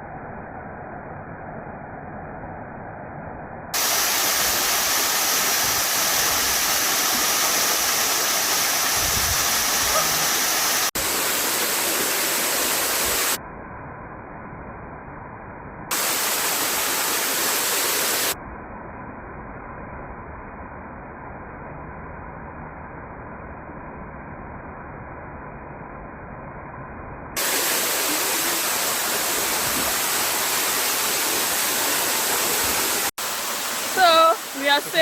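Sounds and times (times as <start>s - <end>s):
waterfall rushing: 3.8s - 13.4s, 15.9s - 18.4s, 27.4s - 35.0s.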